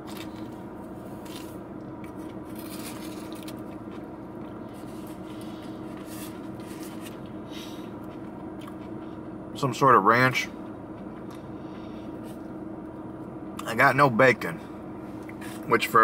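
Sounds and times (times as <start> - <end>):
steady background hum: 0.0 - 16.0
person chewing: 1.2 - 9.2.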